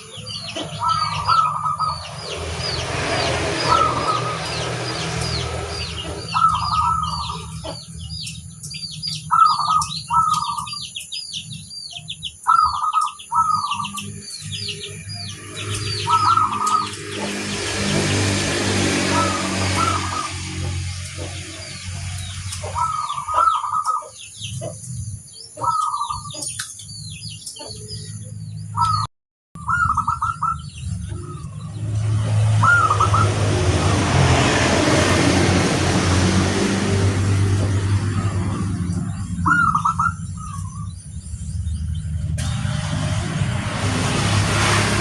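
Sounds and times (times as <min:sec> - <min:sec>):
loud rushing noise: 0:00.0 - 0:07.8, 0:14.1 - 0:23.4, 0:30.9 - 0:40.2, 0:41.4 - 0:45.0
doves cooing: 0:00.0 - 0:08.0, 0:09.2 - 0:10.9, 0:12.4 - 0:14.9, 0:15.6 - 0:24.9, 0:25.6 - 0:26.6, 0:32.6 - 0:35.4, 0:37.1 - 0:40.9
small birds chirping: 0:00.0 - 0:43.9.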